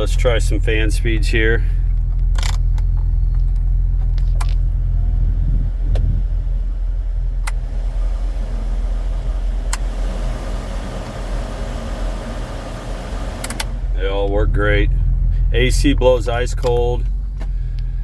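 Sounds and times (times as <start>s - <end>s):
car engine idling: 0.0s - 18.0s
blower fan rushing air: 4.7s - 14.2s
control switch clicks: 7.4s - 7.6s, 9.7s - 9.9s, 13.4s - 13.8s, 16.5s - 17.0s.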